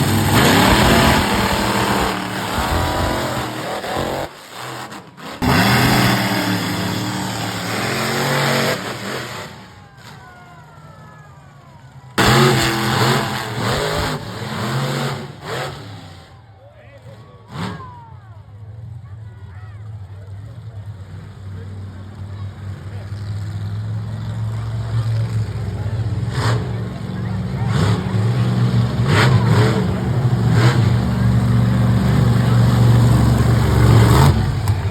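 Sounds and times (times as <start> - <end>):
truck engine revving loudly: 0.0 - 9.8, 12.2 - 16.3, 17.5 - 17.9, 22.1 - 34.9.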